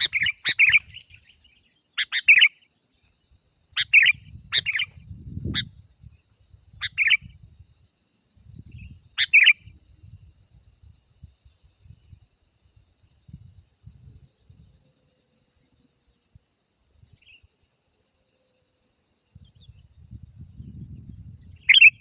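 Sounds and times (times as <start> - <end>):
bulbul two-part calls: 0.0 - 3.0, 3.7 - 7.4, 8.6 - 9.8, 21.4 - 22.0
steady high-pitched hiss: 0.0 - 22.0.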